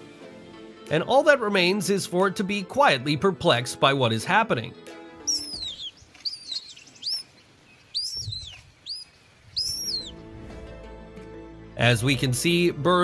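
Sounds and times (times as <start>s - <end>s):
small bird chirping: 5.2s - 10.2s.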